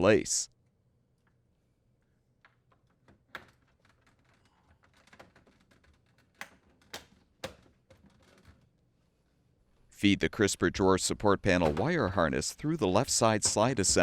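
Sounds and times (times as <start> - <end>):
plastic parts handled: 2.4 - 8.8.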